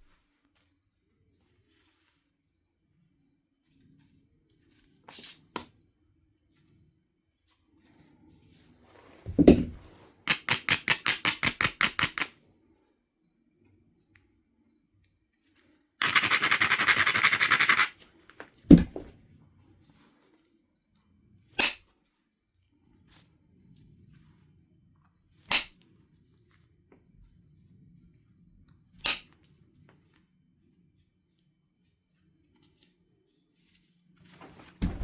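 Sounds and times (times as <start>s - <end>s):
heavy knock on stone: 18.7s - 19.1s.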